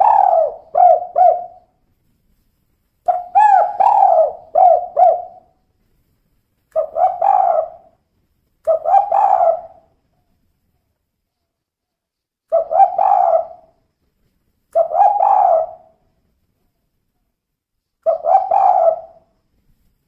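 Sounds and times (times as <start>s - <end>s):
dove cooing: 0.0s - 1.7s, 3.1s - 5.6s, 6.8s - 7.9s, 8.7s - 9.9s, 12.5s - 13.7s, 14.8s - 16.0s, 18.0s - 19.3s.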